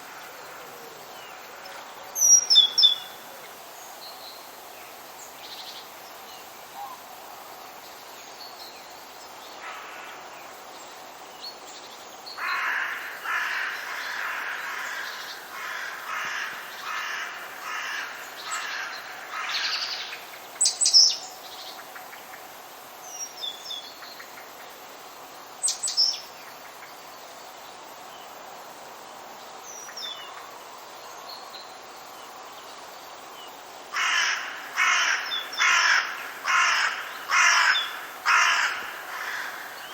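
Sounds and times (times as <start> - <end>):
faint background hiss: 0.0 - 39.9
bird harsh repeated calls: 34.0 - 39.9.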